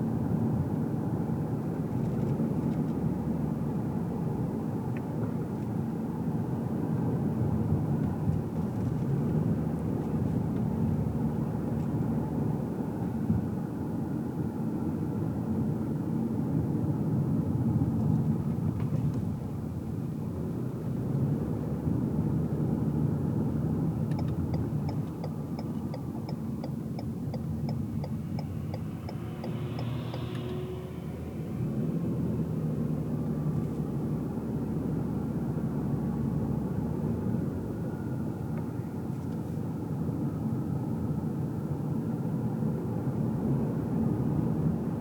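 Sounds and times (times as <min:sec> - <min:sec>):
tyre road noise: 0:00.0 - 0:14.0, 0:15.5 - 0:45.0
car engine: 0:00.0 - 0:45.0
turn signal ticking: 0:24.0 - 0:30.7.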